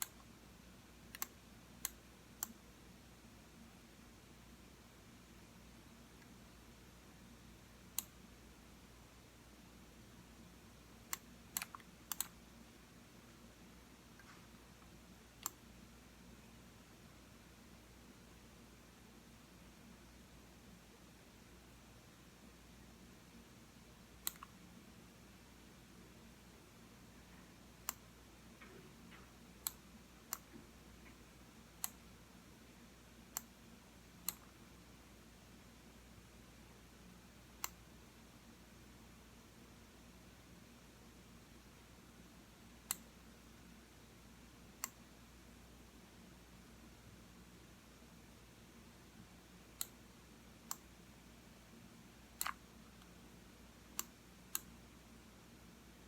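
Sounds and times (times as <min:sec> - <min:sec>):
computer mouse button clicking: 0:01.1 - 0:02.6, 0:11.1 - 0:12.3, 0:52.4 - 0:52.6
faint ticks: 0:01.1 - 0:02.6.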